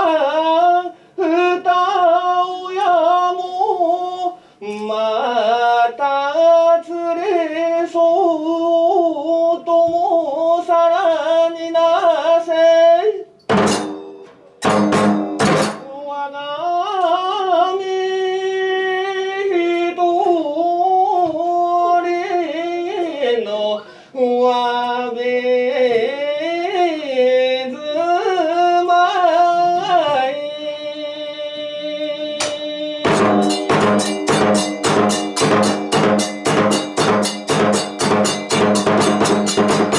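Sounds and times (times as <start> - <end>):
fast drum strokes: 13.5 - 15.9, 32.5 - 39.9
sharp percussion strikes: 13.5 - 15.9, 32.4 - 39.9.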